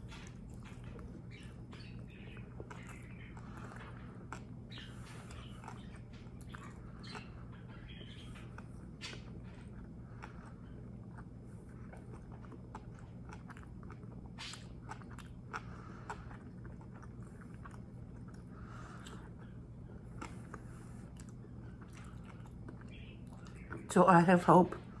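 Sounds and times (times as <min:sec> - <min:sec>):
person chewing food: 0:00.0 - 0:23.9
faint steady low hum: 0:00.0 - 0:25.0.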